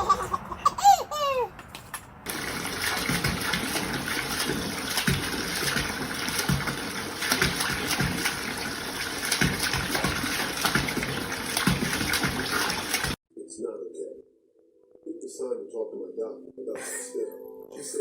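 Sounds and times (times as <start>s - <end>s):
running water rushing: 2.3s - 13.2s.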